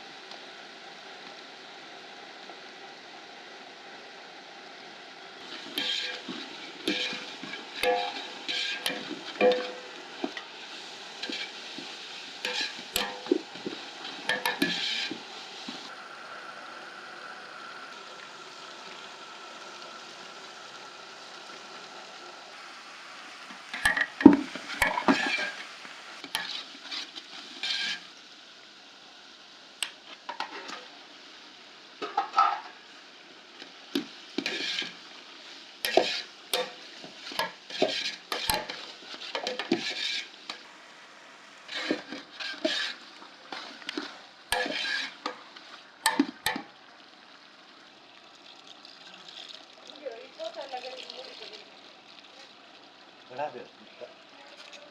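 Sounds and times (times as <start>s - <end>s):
faint steady sizzle: 0.0s - 54.9s
spoon scraping in cooking pot: 5.4s - 15.9s, 23.2s - 28.0s, 35.8s - 40.7s, 41.7s - 46.7s.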